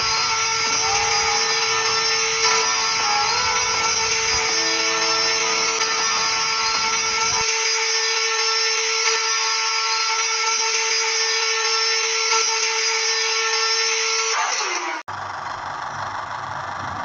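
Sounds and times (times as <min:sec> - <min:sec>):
power tool motor whine: 0:00.0 - 0:15.1.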